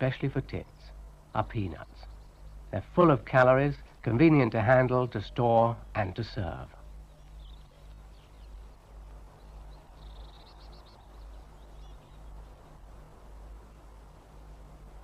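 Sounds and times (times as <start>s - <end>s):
small birds chirping: 0.0s - 15.0s
steady low hum: 0.0s - 15.0s
bird rippling trill: 6.7s - 12.8s.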